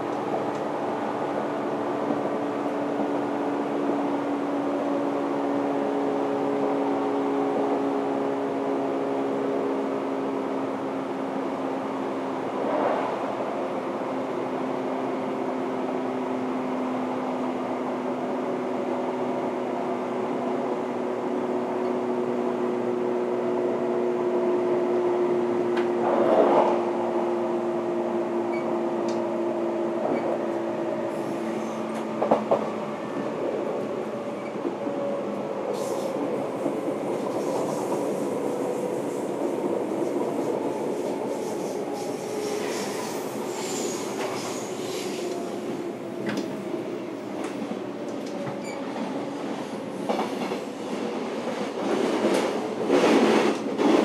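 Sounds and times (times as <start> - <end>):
train running rumble: 22.4 - 54.0.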